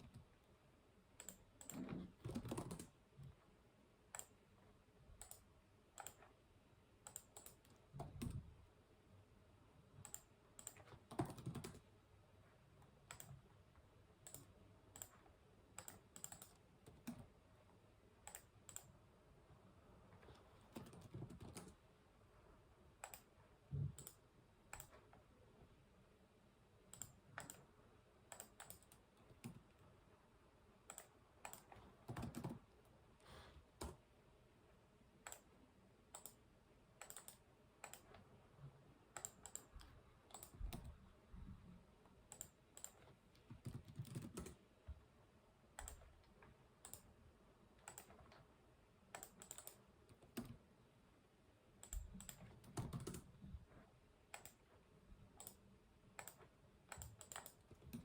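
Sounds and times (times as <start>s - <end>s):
computer keyboard typing: 1.2s - 3.0s, 5.2s - 6.4s, 7.0s - 8.4s, 10.0s - 11.9s, 13.0s - 13.4s, 14.2s - 17.3s, 18.2s - 18.9s, 20.6s - 21.8s, 23.0s - 25.1s, 26.9s - 27.7s, 28.3s - 29.7s, 30.8s - 32.7s, 36.1s - 36.4s, 37.0s - 38.2s, 39.1s - 41.0s, 42.3s - 44.6s, 45.8s - 46.1s, 46.8s - 47.1s, 47.8s - 48.4s, 49.1s - 50.6s, 51.8s - 53.3s, 54.3s - 54.6s, 55.4s - 55.6s, 56.2s - 58.0s.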